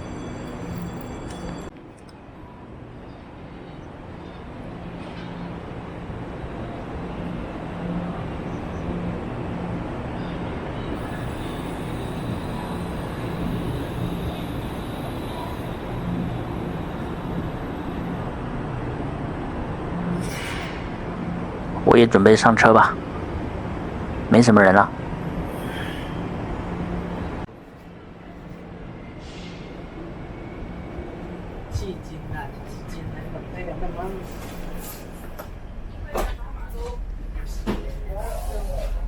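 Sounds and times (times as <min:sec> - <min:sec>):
low drone: 0:00.0 - 0:21.9, 0:22.9 - 0:39.0
train humming and rushing: 0:00.0 - 0:39.0
faint voices: 0:10.0 - 0:19.9, 0:31.1 - 0:39.0.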